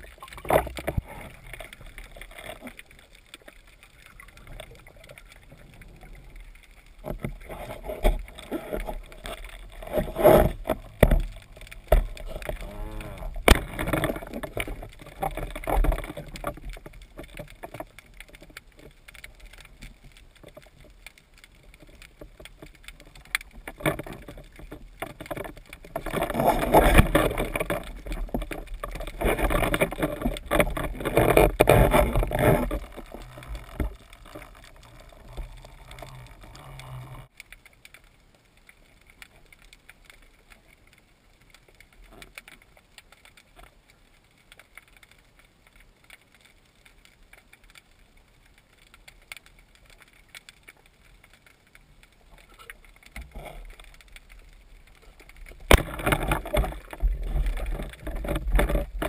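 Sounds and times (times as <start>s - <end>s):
water splashing: 0.0s - 46.3s, 46.9s - 59.0s
faint clicks: 0.0s - 59.0s
underwater sound: 0.0s - 59.0s.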